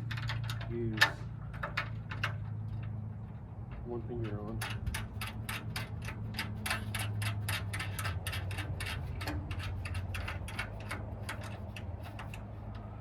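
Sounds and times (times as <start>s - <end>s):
rapid irregular clicking: 3.6s - 13.0s.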